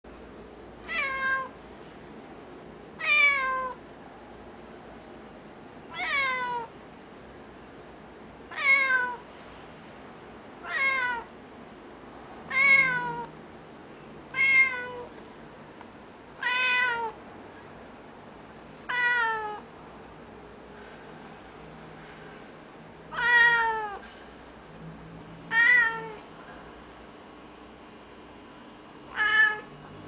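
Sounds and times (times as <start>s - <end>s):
cat meowing: 0.8s - 1.5s, 3.0s - 3.8s, 5.9s - 6.7s, 8.5s - 9.2s, 10.6s - 11.3s, 12.5s - 13.3s, 14.3s - 15.1s, 16.4s - 17.2s, 18.9s - 19.6s, 23.1s - 24.0s, 25.5s - 26.2s, 29.1s - 29.7s.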